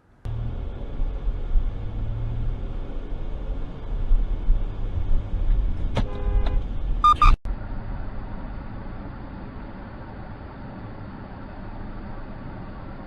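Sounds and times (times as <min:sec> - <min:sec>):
car engine and road rumble: 0:00.0 - 0:13.0
high horn blast: 0:06.0 - 0:07.3
car horn: 0:06.0 - 0:07.4.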